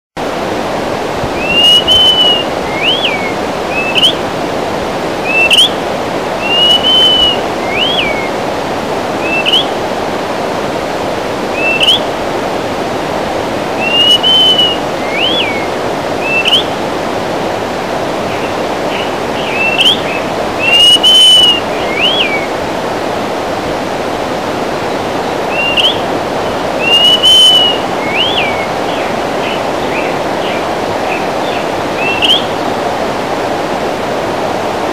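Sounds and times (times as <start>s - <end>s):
steady rushing noise: 0.2s - 34.9s
bird singing slurred whistles: 1.4s - 4.2s, 5.2s - 5.8s, 6.4s - 8.4s, 9.2s - 9.7s, 11.6s - 12.1s, 13.8s - 16.8s, 18.3s - 22.5s, 25.5s - 26.0s, 26.8s - 30.6s, 31.4s - 32.6s
short rising whistles: 1.4s - 4.2s, 6.4s - 8.3s, 13.8s - 16.7s, 20.6s - 22.4s, 26.8s - 28.7s.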